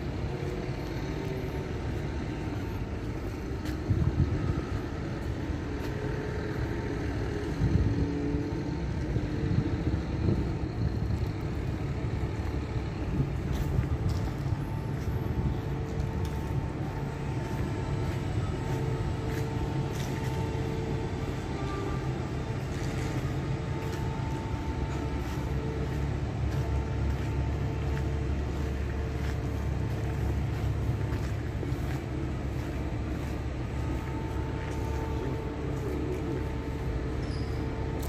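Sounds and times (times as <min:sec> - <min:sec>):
electric train rumbling: 0:00.0 - 0:38.0.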